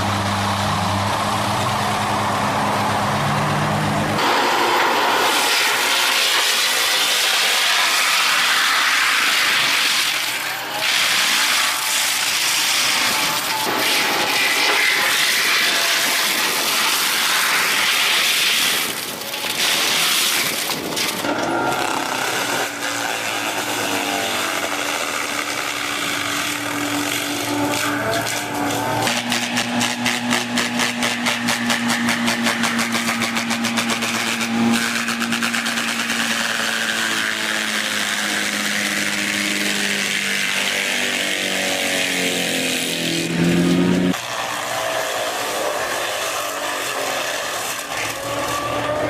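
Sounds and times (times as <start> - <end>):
machine engine humming: 0.0 - 6.7, 20.8 - 45.9
harsh forestry machinery noise: 0.0 - 49.0.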